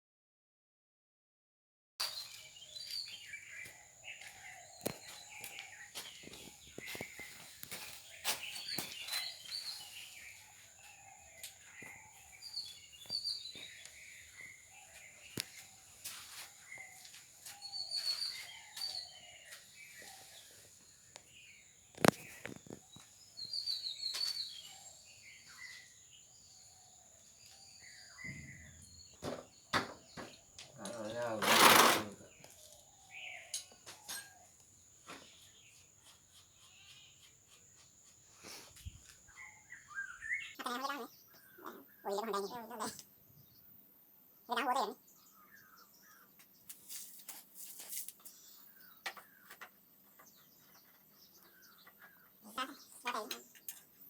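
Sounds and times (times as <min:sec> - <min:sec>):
birds chirping faintly: 0:02.0 - 0:54.0
hissy scrapes: 0:31.4 - 0:32.2.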